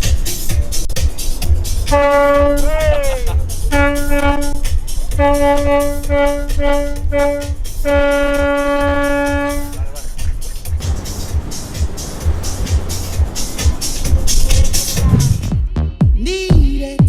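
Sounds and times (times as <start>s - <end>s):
yacht horn blasts: 1.8s - 15.2s.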